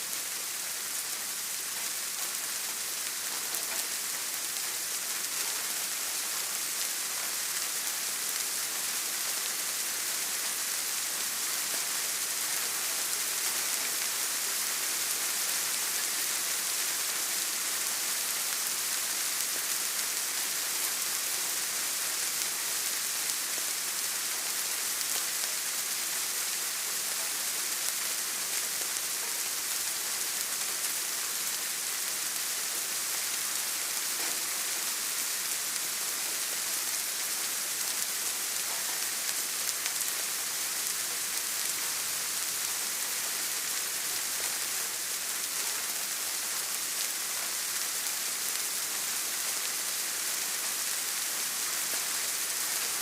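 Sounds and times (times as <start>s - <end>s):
steady rain hiss: 0.0s - 53.0s
faint raindrop ticks: 34.2s - 34.5s.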